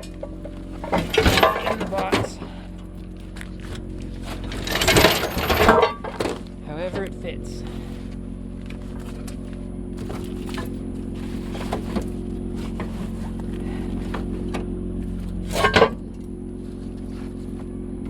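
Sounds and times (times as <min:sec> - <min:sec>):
gear clattering into box: 0:00.0 - 0:02.6, 0:04.2 - 0:07.1, 0:15.2 - 0:16.1
gear clinking and knocking: 0:00.0 - 0:07.3, 0:08.7 - 0:16.2
vehicle engine idling: 0:00.0 - 0:18.0.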